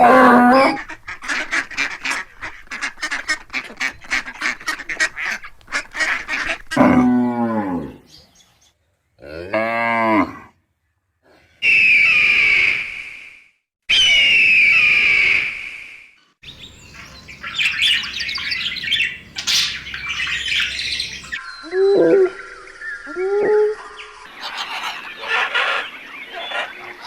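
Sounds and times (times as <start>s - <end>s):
waterfowl honking: 16.4s - 21.4s, 24.3s - 27.0s.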